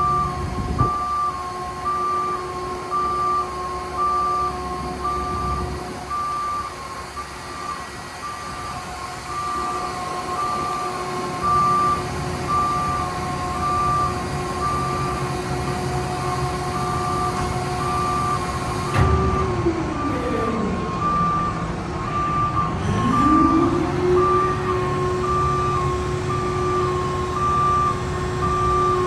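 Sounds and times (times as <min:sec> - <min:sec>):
truck backup alarm beeping: 0:00.0 - 0:29.0
truck diesel engine running: 0:06.9 - 0:29.0.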